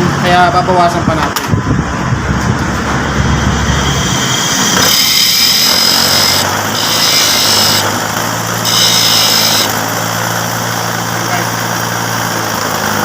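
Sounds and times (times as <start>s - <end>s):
motor hum: 2.0s - 13.0s
power tool grinding carbon brush: 4.8s - 13.0s.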